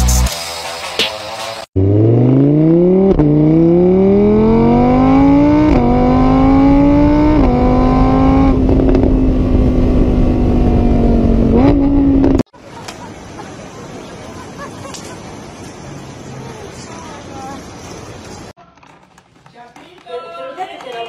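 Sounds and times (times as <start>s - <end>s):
car engine accelerating through gears: 1.8s - 12.5s.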